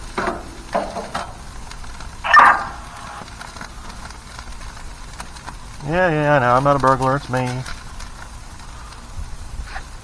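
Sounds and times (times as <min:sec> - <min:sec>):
burgers sizzling on grill: 0:00.0 - 0:10.0
dog barking: 0:02.3 - 0:03.2.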